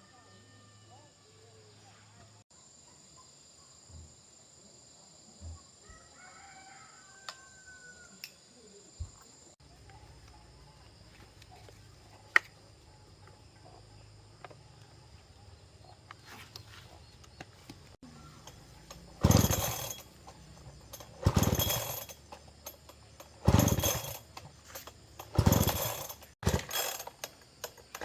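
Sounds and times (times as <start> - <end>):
rooster crowing: 5.8 - 8.2.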